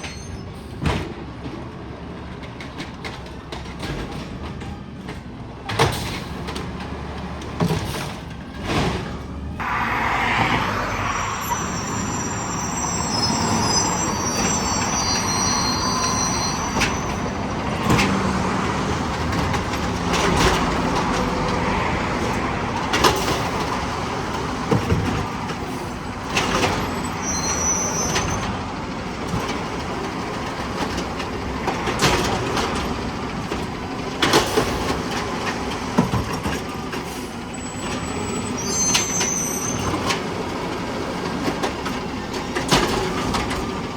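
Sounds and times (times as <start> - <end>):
garbage truck running: 0.0 - 43.9
high-pitched squeals: 9.6 - 21.5, 25.4 - 29.0, 38.2 - 40.2.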